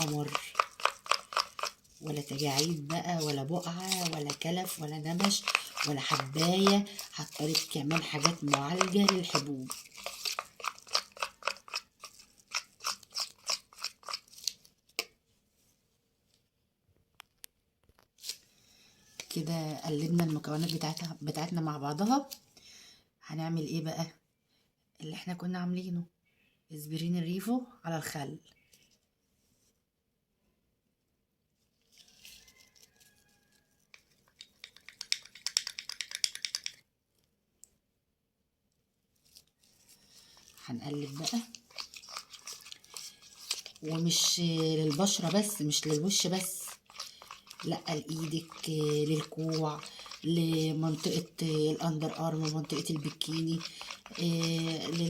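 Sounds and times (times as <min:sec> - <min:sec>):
spoon stirring thick mixture in bowl: 0:00.0 - 0:15.2, 0:19.0 - 0:22.4, 0:32.0 - 0:36.9, 0:39.2 - 0:55.0
soft rustle: 0:31.6 - 0:34.4.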